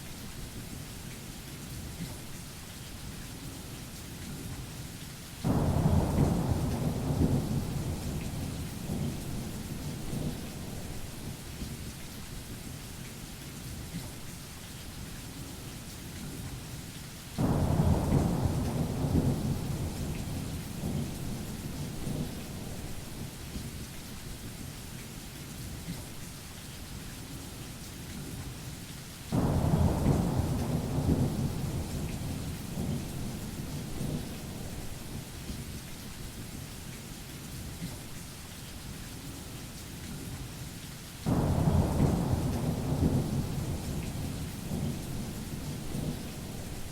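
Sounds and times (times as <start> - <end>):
heavy rain: 0.0 - 46.9
thunder rumbles: 5.5 - 11.6, 17.4 - 23.4, 29.4 - 35.3, 41.3 - 46.9.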